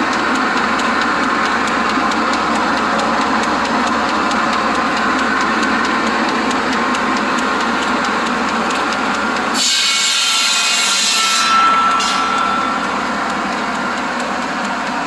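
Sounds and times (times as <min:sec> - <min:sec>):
buzz saw running: 0:00.0 - 0:15.0
saw blade ringing whine: 0:01.2 - 0:15.0
saw ripping through board: 0:09.5 - 0:12.6.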